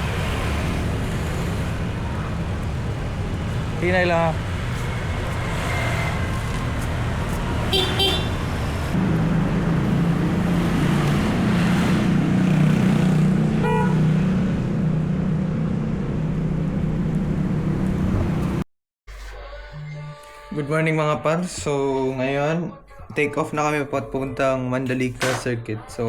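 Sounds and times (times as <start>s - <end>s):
louder engine hum: 0.0s - 18.6s
road traffic engines: 0.0s - 18.6s
short horn toots: 7.7s - 8.4s, 13.6s - 14.0s.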